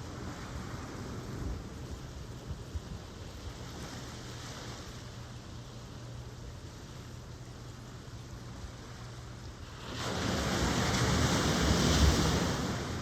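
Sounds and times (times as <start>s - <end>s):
ocean surf washing: 9.6s - 13.0s.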